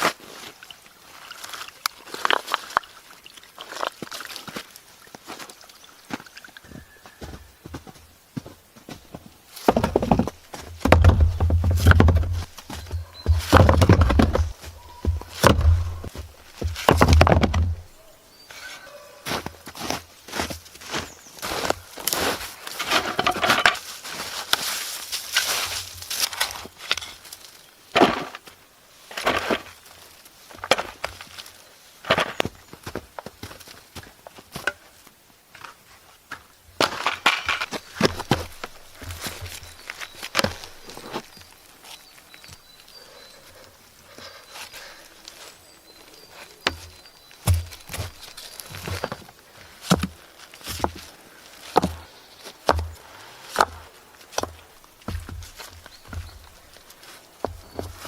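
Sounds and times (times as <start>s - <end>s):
dull knocks on wood: 9.7s - 17.9s
hand tool striking wood: 9.7s - 17.9s, 46.7s - 48.2s, 52.7s - 53.0s.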